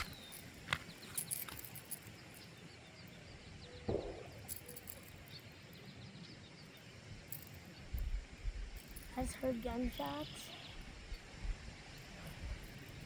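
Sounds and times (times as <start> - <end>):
distant gunshot: 3.9 - 4.5.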